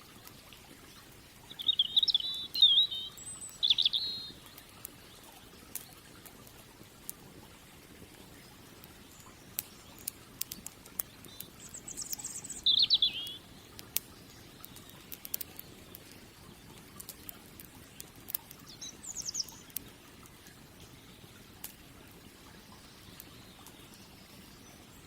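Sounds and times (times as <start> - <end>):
low steady hiss: 0.0 - 25.0
wood fire crackling: 0.0 - 25.0
small bird trilling: 1.5 - 4.4, 11.6 - 13.4.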